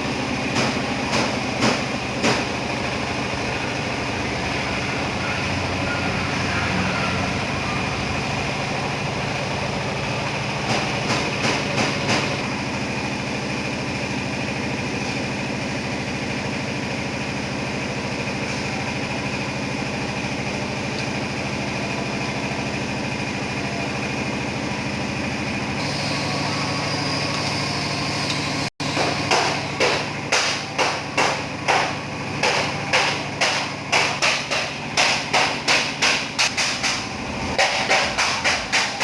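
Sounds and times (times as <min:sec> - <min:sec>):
hammer blows on sheet steel: 0:28.8 - 0:39.0.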